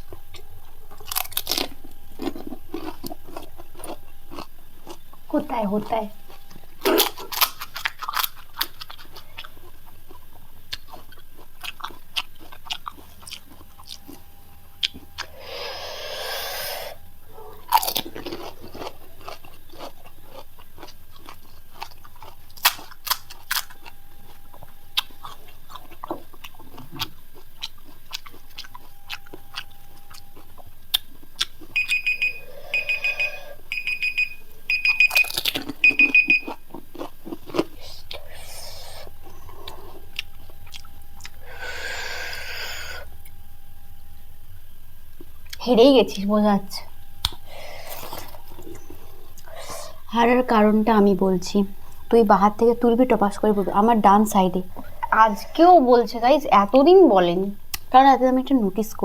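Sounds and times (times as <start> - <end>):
crunching and chewing crisp shells: 0.0 - 59.0
electronic timer beeping: 31.7 - 36.6.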